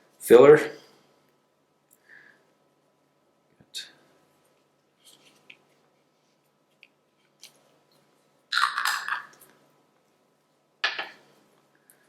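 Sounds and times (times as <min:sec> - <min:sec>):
crackly rustle: 0:04.4 - 0:08.3.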